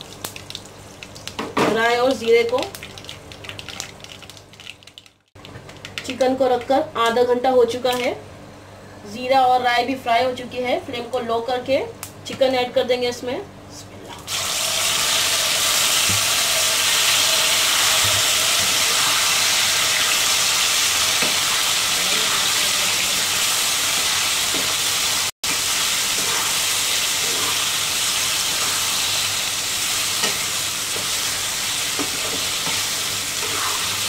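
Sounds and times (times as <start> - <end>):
chicken sizzling in hot oil: 14.3 - 34.0.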